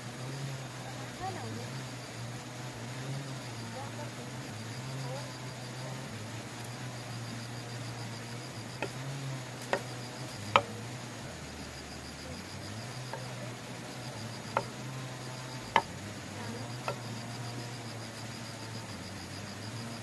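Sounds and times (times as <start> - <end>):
insects trilling: 0.0 - 20.0
sharp knocks: 9.6 - 10.8.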